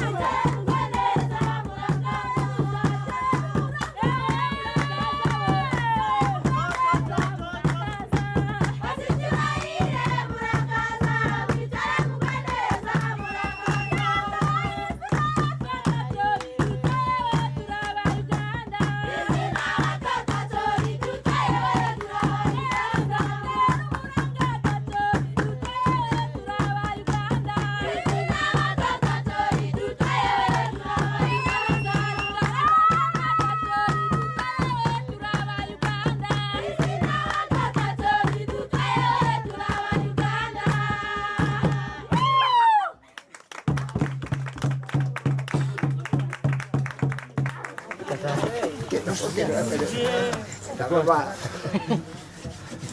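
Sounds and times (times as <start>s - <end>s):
fast hand clapping: 0.0s - 18.9s, 43.0s - 48.9s
group singing in chorus: 0.0s - 42.5s.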